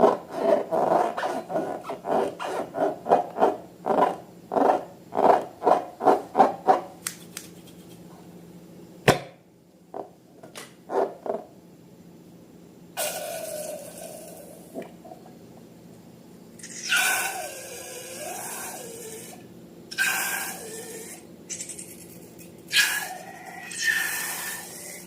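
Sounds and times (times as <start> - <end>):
sharp snap: 7.0 - 7.6.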